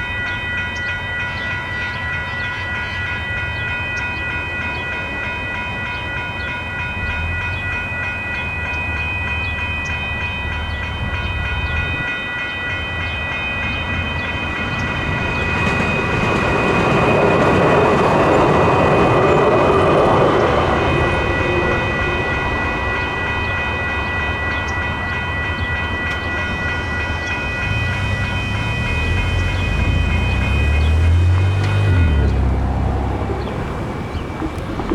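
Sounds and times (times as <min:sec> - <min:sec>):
railroad crossing bells ringing: 0:00.0 - 0:34.9
train running noise: 0:00.0 - 0:34.9.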